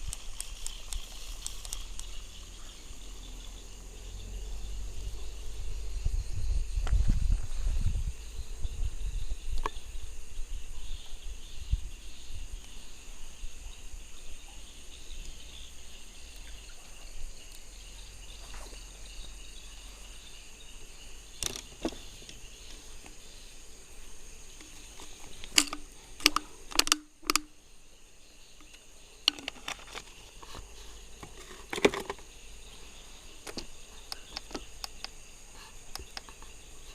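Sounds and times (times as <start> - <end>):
crickets and insects trilling: 0.0 - 36.9
handling clicks and knocks: 21.4 - 23.2, 24.6 - 27.6, 28.6 - 32.3, 33.4 - 35.2.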